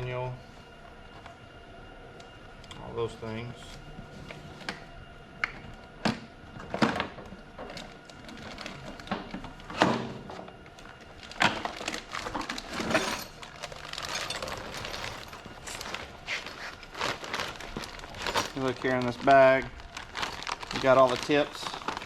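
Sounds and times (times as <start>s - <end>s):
parts and packaging being handled: 10.6s - 22.0s
packaging rustling: 10.8s - 22.0s.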